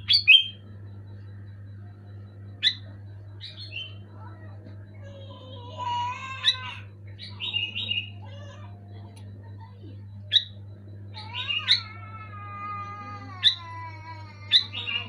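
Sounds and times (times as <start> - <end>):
bird chirping calls: 0.0 - 0.7, 2.5 - 8.7
steady low hum: 0.0 - 15.0.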